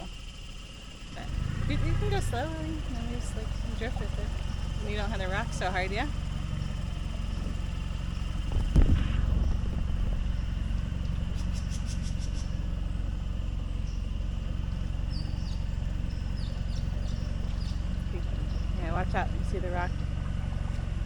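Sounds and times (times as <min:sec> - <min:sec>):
faint high ticks and chirps: 0:00.0 - 0:08.6, 0:09.4 - 0:21.0
outboard motor running: 0:00.0 - 0:21.0
loud thump: 0:08.5 - 0:10.3.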